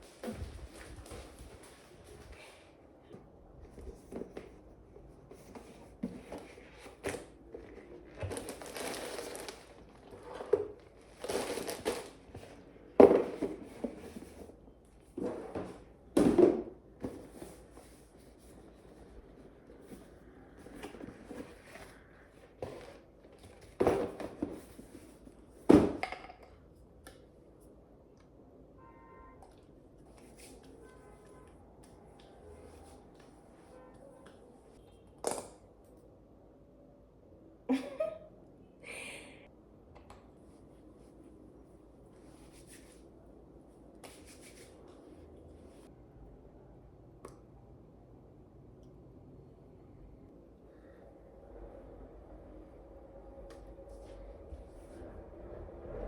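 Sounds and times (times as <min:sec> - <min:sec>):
crinkling and crumpling: 0:05.3 - 0:14.4.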